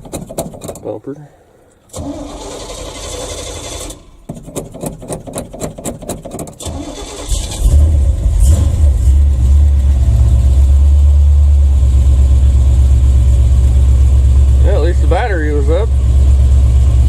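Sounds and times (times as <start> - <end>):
engine cranking on starter: 1.9 - 10.9
truck engine idling: 6.7 - 17.0.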